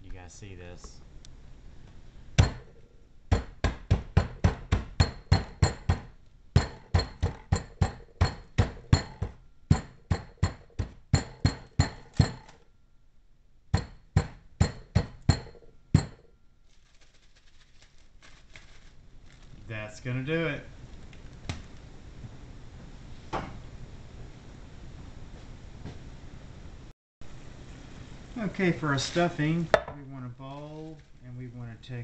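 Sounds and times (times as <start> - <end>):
pounding croutons in a plastic bag: 16.6 - 19.7.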